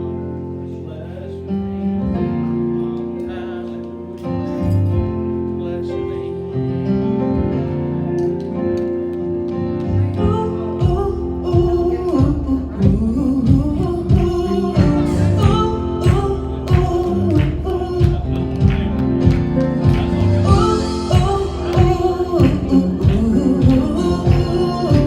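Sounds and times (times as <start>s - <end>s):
held chords: 0.0s - 25.0s
person singing: 9.9s - 25.0s
drums: 10.2s - 25.0s.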